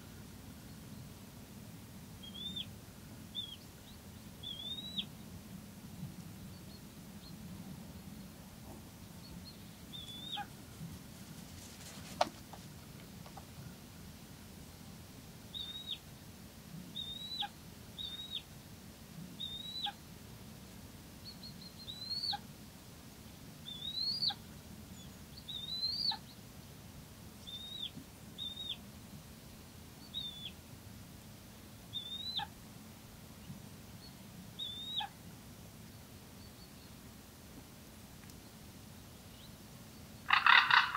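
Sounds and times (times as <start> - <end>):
bird whistling: 2.2 - 2.7, 4.4 - 5.1, 15.6 - 16.0, 17.0 - 18.4, 34.6 - 35.1.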